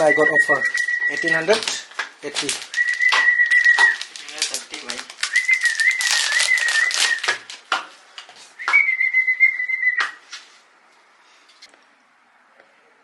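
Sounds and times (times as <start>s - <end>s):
high steady whistle: 0.0s - 1.5s, 2.7s - 4.1s, 5.3s - 7.4s, 8.6s - 10.2s.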